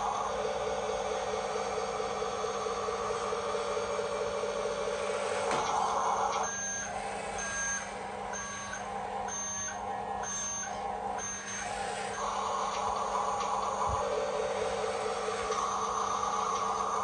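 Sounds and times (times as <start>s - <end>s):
electric motor and gears whining: 0.0s - 17.0s
electronic reversing beeper: 5.9s - 13.9s.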